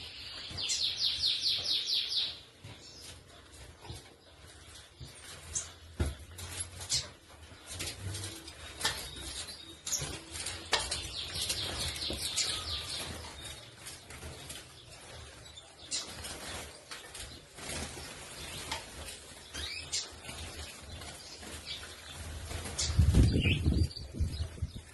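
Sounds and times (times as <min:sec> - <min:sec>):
small birds chirping: 0:00.0 - 0:24.9
wings fluttering: 0:15.9 - 0:24.9.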